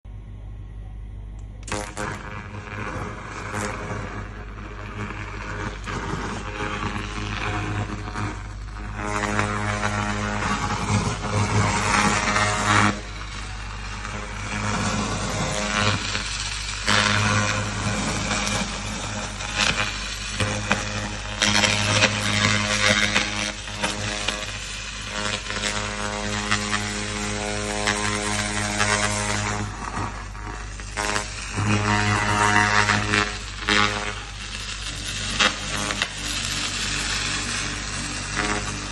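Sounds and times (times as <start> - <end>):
machine hum: 0.0 - 38.9
laser cleaner crackling hiss: 1.4 - 38.9.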